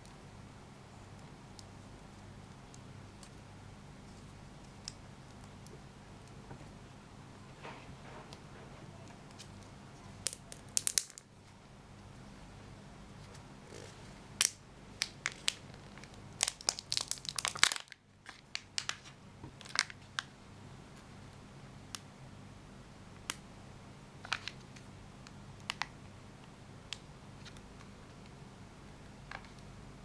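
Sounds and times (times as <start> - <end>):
plastic packaging crinkling: 10.3 - 11.3, 14.5 - 20.3.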